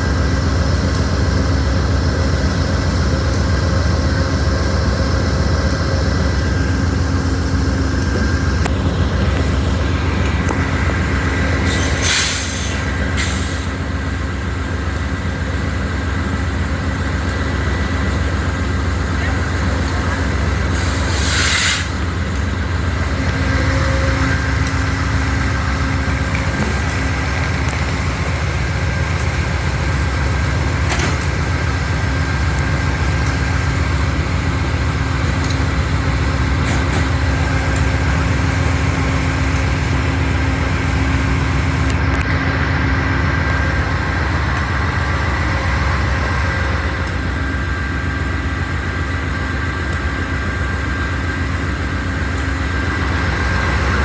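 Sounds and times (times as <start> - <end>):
large engine idling: 0.0 - 54.0
short hiss: 11.7 - 13.7, 20.8 - 22.0.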